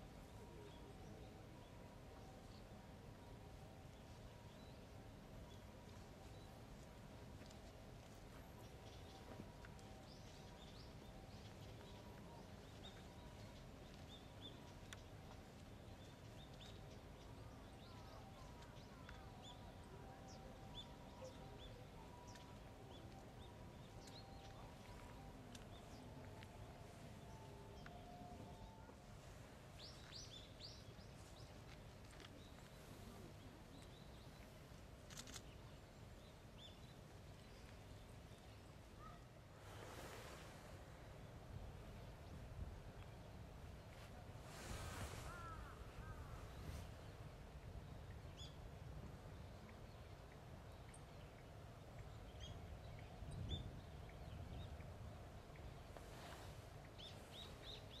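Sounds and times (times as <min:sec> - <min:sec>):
faint low rumble: 0:00.0 - 0:58.0
faint high bird calls: 0:38.4 - 0:40.2, 0:43.9 - 0:47.1.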